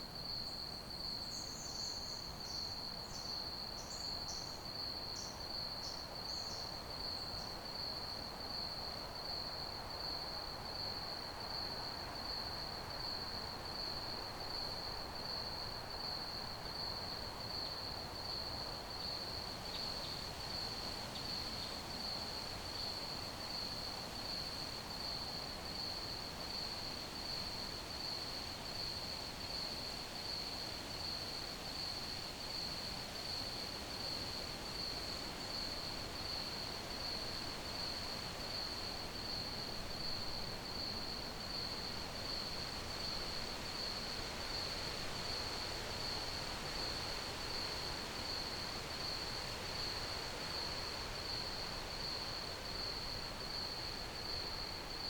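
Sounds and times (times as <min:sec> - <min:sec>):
crickets chirping: 0:11.5 - 0:55.0.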